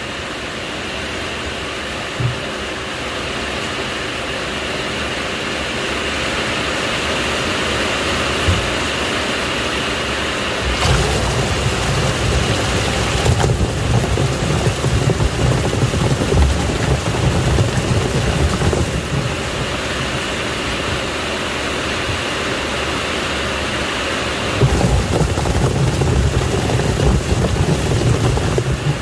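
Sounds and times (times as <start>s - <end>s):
washing machine rumble: 1.8s - 3.7s, 6.4s - 23.2s, 23.9s - 29.0s
washing machine drum churning water: 7.4s - 9.6s, 10.3s - 22.6s, 24.3s - 29.0s.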